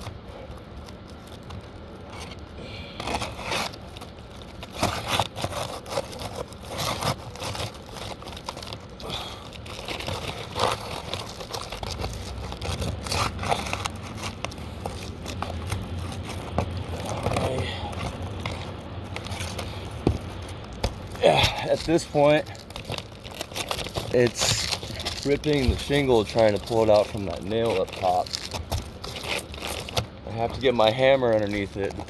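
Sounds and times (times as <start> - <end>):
roof shingles scraping and ripping: 0.0 - 32.0.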